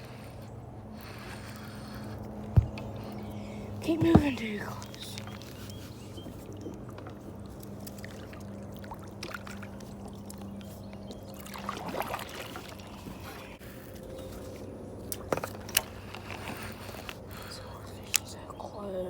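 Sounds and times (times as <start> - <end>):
low motor hum: 0.0 - 19.0
water around kayak: 0.0 - 19.0
sharp knocks: 3.9 - 4.4.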